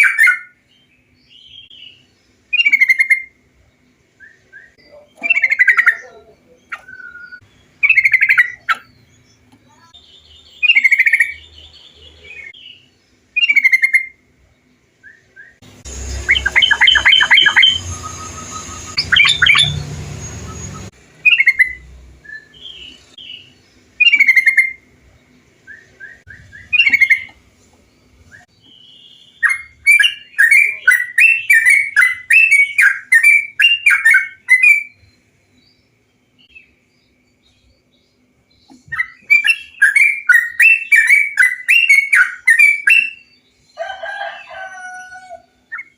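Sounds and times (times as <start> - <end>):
bird song whistled phrases: 0.0 - 0.6, 1.3 - 3.4, 4.2 - 8.8, 9.7 - 14.2, 15.0 - 24.8, 25.6 - 27.3, 28.3 - 35.2, 38.6 - 43.4
bird chattering notes: 1.7 - 3.4, 4.7 - 10.0, 10.6 - 12.6, 13.4 - 14.2, 15.8 - 24.9, 25.8 - 27.4, 28.6 - 35.0.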